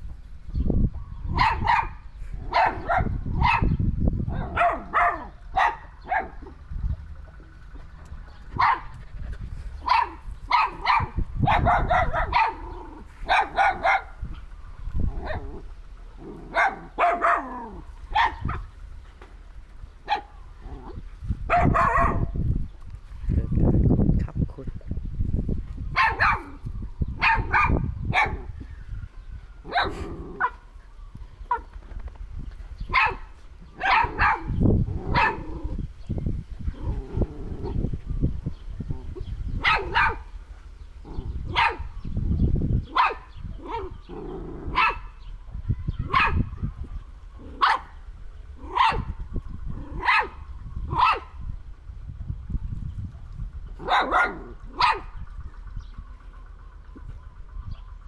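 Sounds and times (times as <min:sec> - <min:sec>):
low rumble: 0:00.0 - 0:58.0
dog barking: 0:01.3 - 0:06.5, 0:08.6 - 0:08.9, 0:09.8 - 0:14.3, 0:16.5 - 0:18.7, 0:20.0 - 0:20.3, 0:21.5 - 0:22.4, 0:25.9 - 0:26.6, 0:27.2 - 0:28.5, 0:29.7 - 0:30.6, 0:31.5 - 0:31.7, 0:32.9 - 0:35.5, 0:39.6 - 0:40.3, 0:41.5 - 0:41.9, 0:42.9 - 0:44.0, 0:44.7 - 0:45.2, 0:46.0 - 0:46.6, 0:47.5 - 0:48.0, 0:48.6 - 0:49.2, 0:50.0 - 0:51.4, 0:53.8 - 0:55.2.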